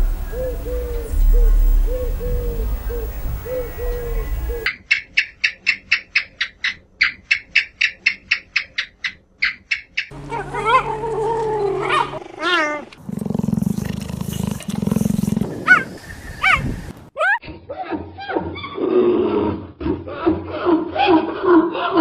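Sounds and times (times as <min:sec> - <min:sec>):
low rough growl: 0:10.2 - 0:16.0.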